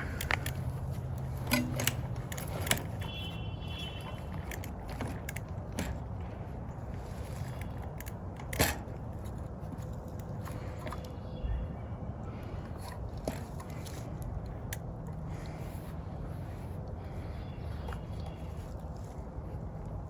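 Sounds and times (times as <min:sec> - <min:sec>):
metal bike parts clicking and knocking: 0:00.0 - 0:11.1, 0:12.6 - 0:15.2
low background rumble: 0:00.0 - 0:20.0.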